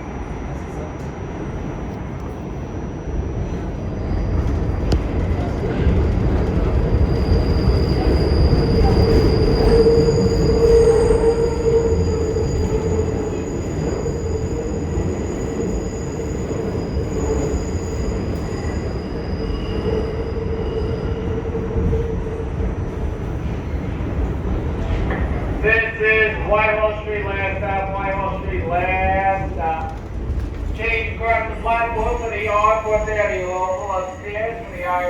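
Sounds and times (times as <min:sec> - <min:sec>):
subway train rumble: 0:00.0 - 0:35.0
high wheel squeal: 0:07.0 - 0:21.4, 0:31.9 - 0:35.0.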